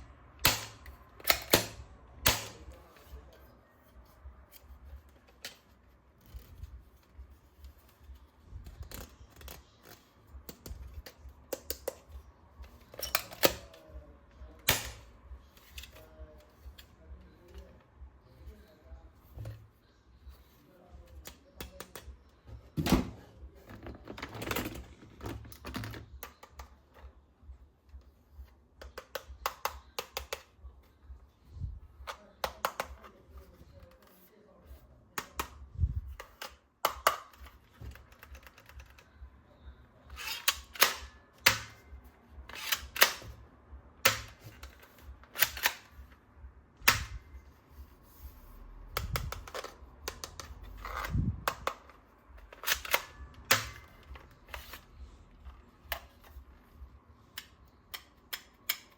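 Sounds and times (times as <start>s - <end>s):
plastic toy guns clicking: 0.4s - 2.8s, 14.6s - 15.1s, 28.8s - 30.5s, 35.2s - 39.1s, 40.1s - 41.9s, 42.5s - 43.4s, 44.0s - 46.1s, 49.0s - 54.8s.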